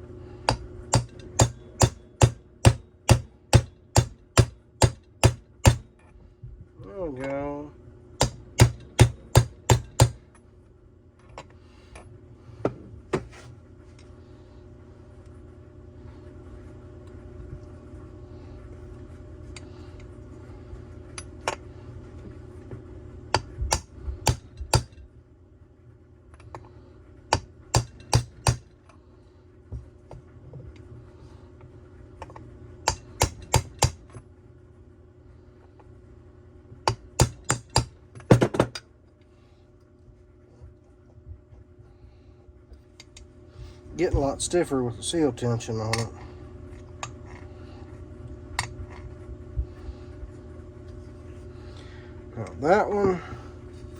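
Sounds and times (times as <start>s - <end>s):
steady low hum: 0.0s - 53.9s
hammer tapping on metal: 0.5s - 5.9s, 8.2s - 10.2s.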